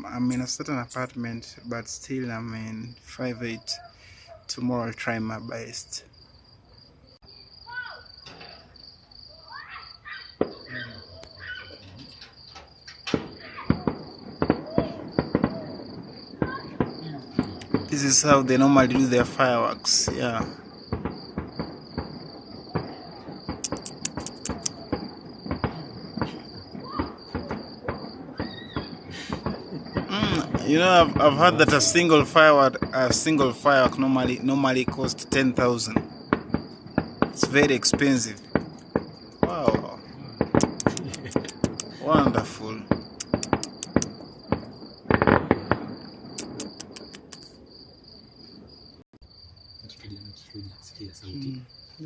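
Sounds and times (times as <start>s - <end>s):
crickets chirping: 0.0s - 52.0s
distant fireworks popping: 7.6s - 49.0s
crackling reports: 9.9s - 47.7s.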